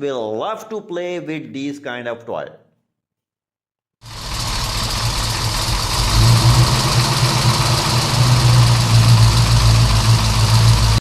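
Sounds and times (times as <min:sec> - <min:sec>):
vehicle engine idling: 0:04.0 - 0:11.0.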